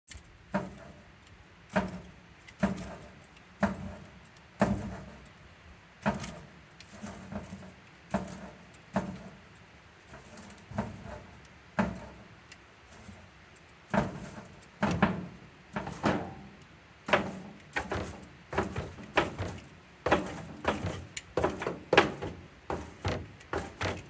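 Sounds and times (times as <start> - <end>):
goat horns knocking: 14.9 - 24.0.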